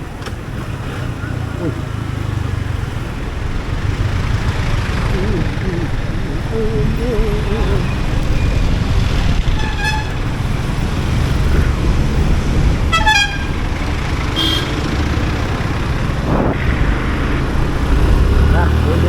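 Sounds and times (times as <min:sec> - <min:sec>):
traffic rumble: 0:00.0 - 0:19.0
vehicle horn toots: 0:09.5 - 0:10.2, 0:12.9 - 0:13.6, 0:14.4 - 0:14.9.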